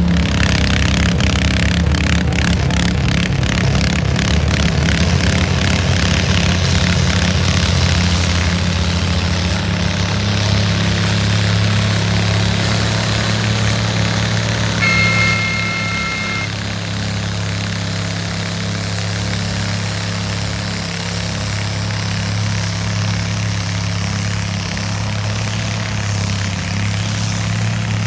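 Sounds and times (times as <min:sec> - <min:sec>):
tractor engine under load: 0:00.0 - 0:28.0
high whistle-like tone: 0:14.8 - 0:16.6.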